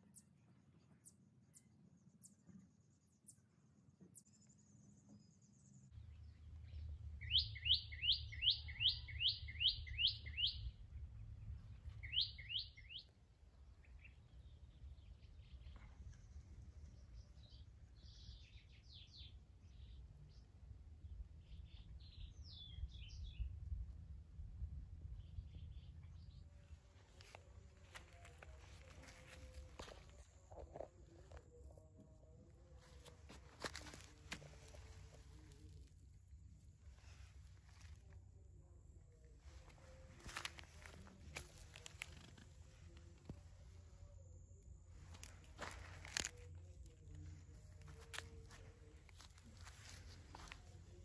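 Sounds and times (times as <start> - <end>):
birds chirping: 4.1 - 13.1, 25.6 - 36.0, 39.4 - 44.1
low steady rumble: 5.8 - 18.4, 19.5 - 51.0.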